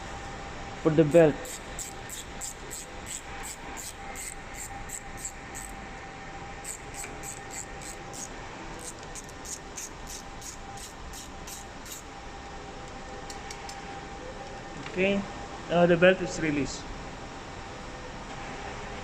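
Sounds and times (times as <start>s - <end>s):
high-pitched rasping ticks: 6.7s - 8.3s.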